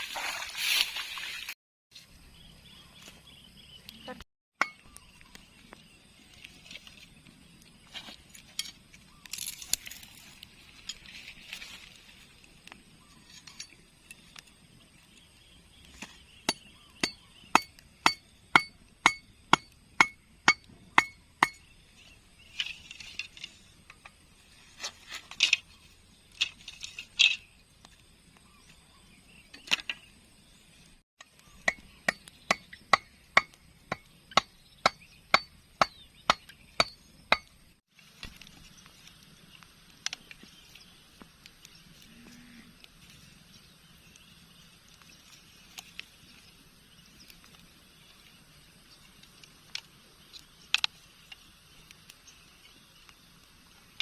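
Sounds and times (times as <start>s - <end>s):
rustling scrapes: 9.4s - 12.4s, 24.4s - 27.5s.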